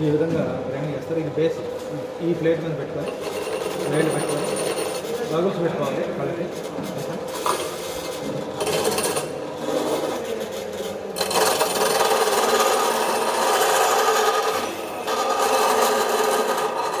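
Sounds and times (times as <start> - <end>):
bench grinder grinding metal: 3.0 - 5.2, 7.3 - 17.0.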